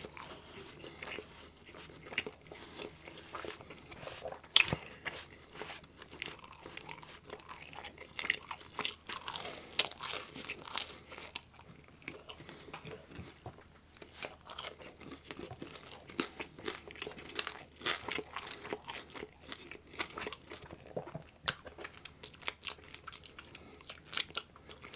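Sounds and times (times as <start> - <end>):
crust crunching: 0.0 - 7.6
chewing and biting pizza: 0.0 - 24.9.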